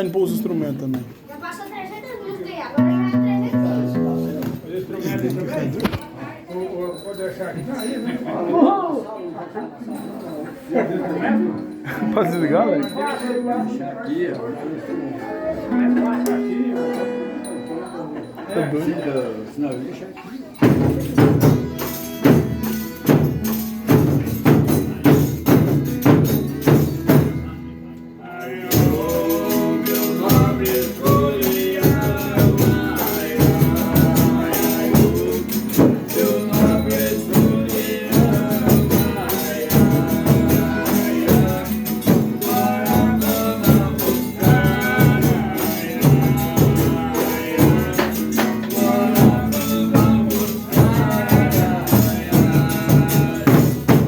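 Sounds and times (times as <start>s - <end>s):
tambourines beating fast rhythm: 20.6s - 27.6s, 28.5s - 54.0s
voices singing together: 28.2s - 54.0s.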